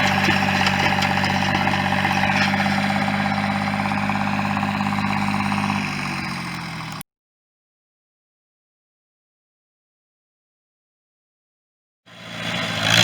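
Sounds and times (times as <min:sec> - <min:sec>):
tractor engine running: 0:00.0 - 0:07.0, 0:12.1 - 0:13.0.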